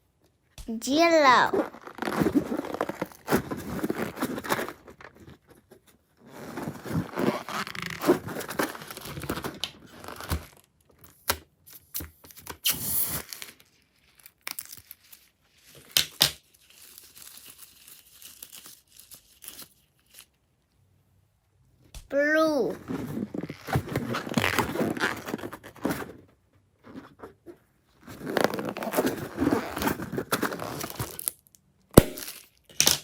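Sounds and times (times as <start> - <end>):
slime crackling and tearing: 13.4 - 15.2, 30.6 - 31.4, 32.0 - 33.0.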